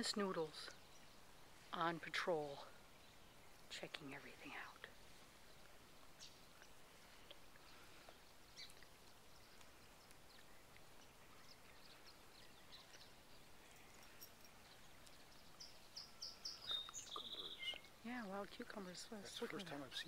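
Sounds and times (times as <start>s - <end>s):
faint high chirps: 5.6s - 18.0s.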